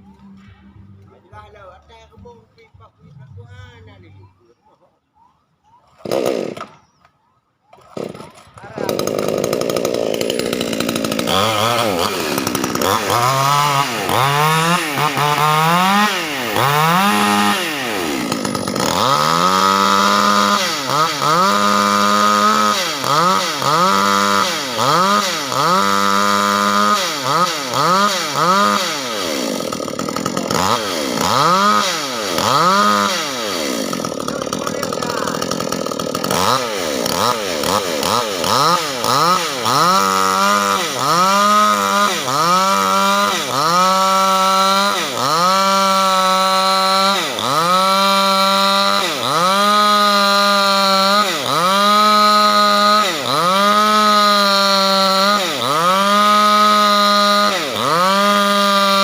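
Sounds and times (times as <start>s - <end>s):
chainsaw cutting wood: 0.0s - 2.4s, 6.0s - 7.1s, 7.7s - 59.0s.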